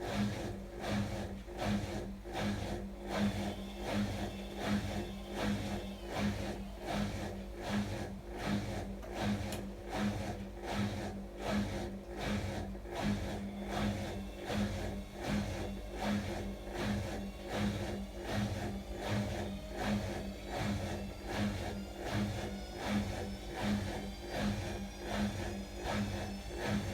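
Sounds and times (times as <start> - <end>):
washing machine running: 0.0 - 26.9.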